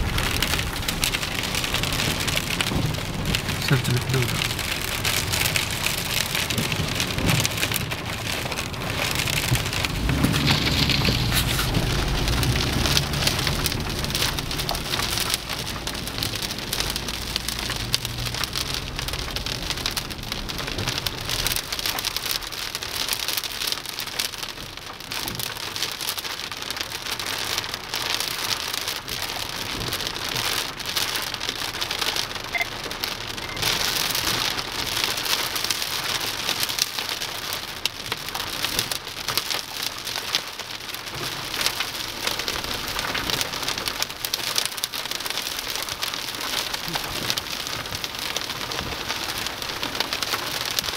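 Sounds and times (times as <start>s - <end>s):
low rumble: 0.0s - 21.6s
heavy rain patter: 0.0s - 50.9s.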